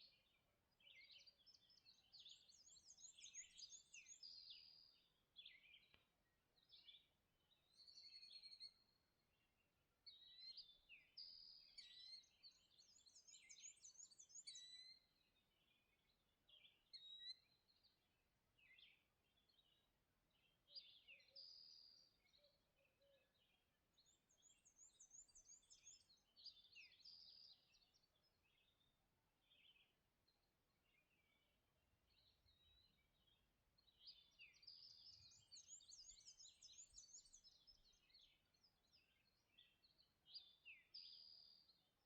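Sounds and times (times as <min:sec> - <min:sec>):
songbirds singing: 0:00.0 - 0:42.0.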